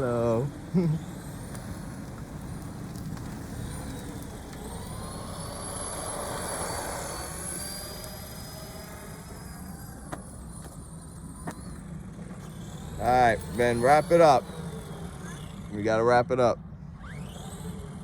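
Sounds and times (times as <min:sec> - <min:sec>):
faint high whine: 0:00.0 - 0:18.0
vehicle passing: 0:02.0 - 0:10.0.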